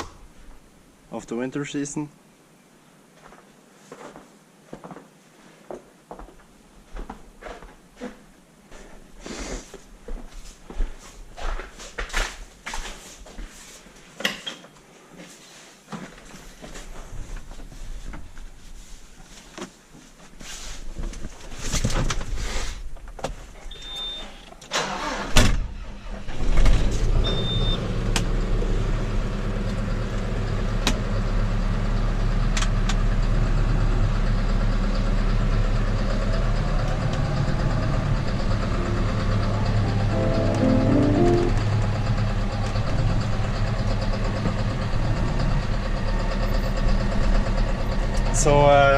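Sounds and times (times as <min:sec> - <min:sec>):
tractor engine starting and idling: 0:24.7 - 0:48.6.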